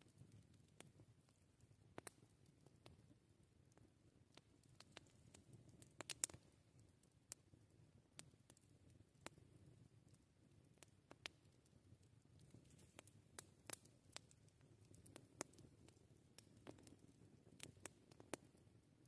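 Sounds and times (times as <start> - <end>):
campfire pops and snaps: 0.0 - 3.0, 3.7 - 6.5, 8.1 - 9.5, 10.8 - 11.6, 12.4 - 18.6
low rumble of burning fire: 0.0 - 19.0.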